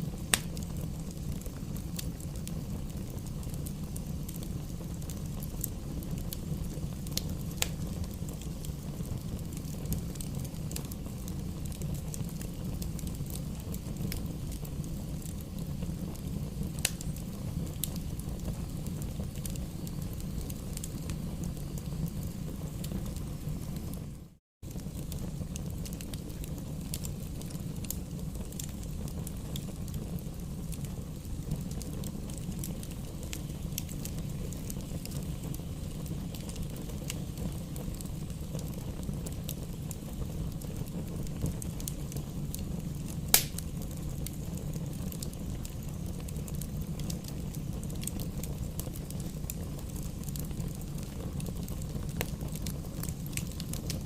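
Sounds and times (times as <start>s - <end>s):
campfire burning: 0.0s - 54.0s
fire crackling: 0.0s - 54.0s
loud sharp pop: 43.3s - 43.6s.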